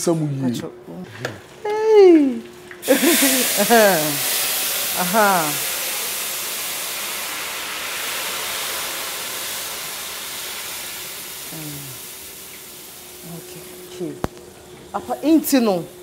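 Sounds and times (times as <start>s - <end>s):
food sizzling in hot oil: 2.8s - 14.1s.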